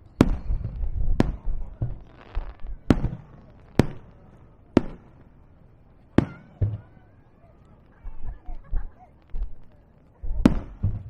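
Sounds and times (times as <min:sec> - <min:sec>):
firework shells bursting: 0:00.0 - 0:06.9.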